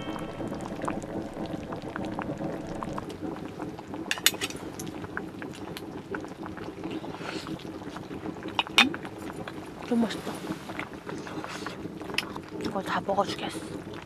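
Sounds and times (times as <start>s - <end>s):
food bubbling in a pot: 0.0s - 14.0s.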